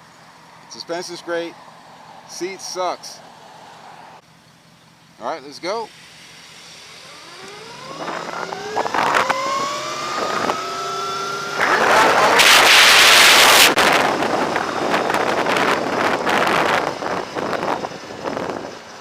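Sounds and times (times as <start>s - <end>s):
electric motorcycle motor whining: 6.0s - 18.7s
wind buffeting microphone: 7.9s - 18.9s.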